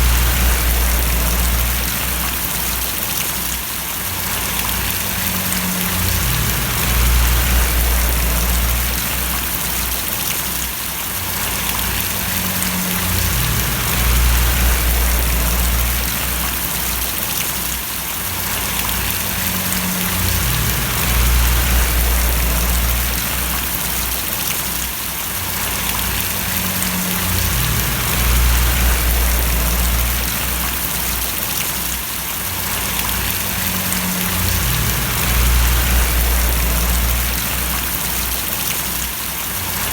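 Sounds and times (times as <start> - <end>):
low rumble: 0.0 - 3.0, 4.3 - 10.2, 11.4 - 16.9, 18.8 - 24.4, 25.6 - 31.4, 32.8 - 38.7
rain splashing and pattering: 0.0 - 39.9.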